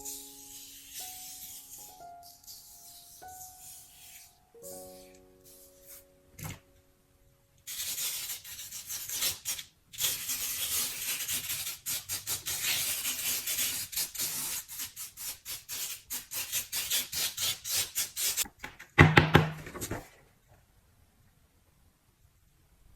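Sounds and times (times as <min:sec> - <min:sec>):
gritty sand rubbing on paper: 0:07.7 - 0:18.4
paper rustle: 0:19.6 - 0:20.3.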